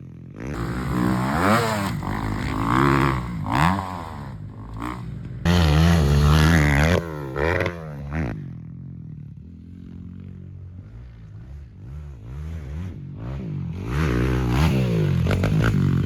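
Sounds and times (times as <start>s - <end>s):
motocross engine revving: 0.4s - 8.4s, 11.4s - 16.0s.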